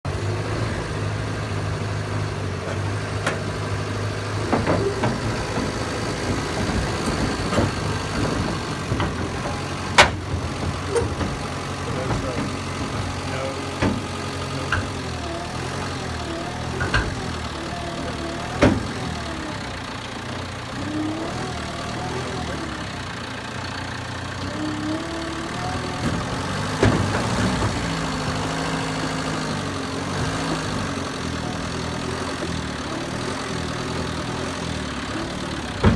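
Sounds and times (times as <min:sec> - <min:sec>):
dozer diesel engine running: 0:00.0 - 0:35.9
sharp machine knocks: 0:04.4 - 0:15.2.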